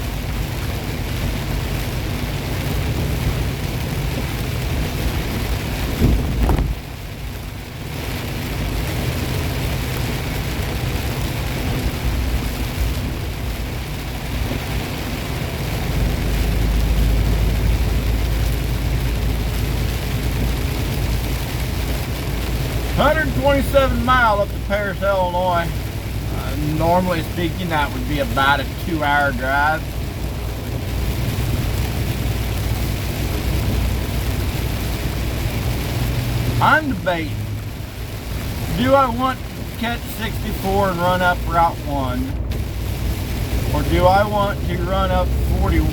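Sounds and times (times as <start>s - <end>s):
deep low rumble: 0.0s - 23.0s, 29.8s - 38.8s, 41.4s - 45.9s
truck engine drone: 0.0s - 45.9s
tyre and road noise: 0.0s - 45.9s.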